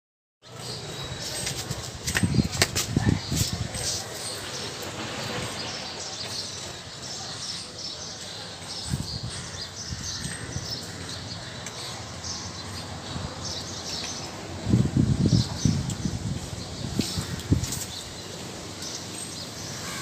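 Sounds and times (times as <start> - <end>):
outdoor background hiss: 9.8 - 20.0.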